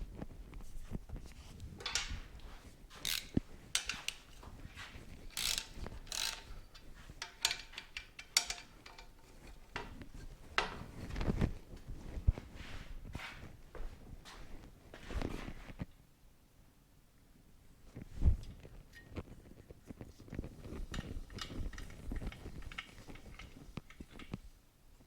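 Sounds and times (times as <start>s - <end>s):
metal hand tools clicking and scraping: 2.9s - 4.5s, 5.2s - 10.0s, 20.8s - 24.4s
ratchet clicking: 3.0s - 4.2s, 5.3s - 9.2s.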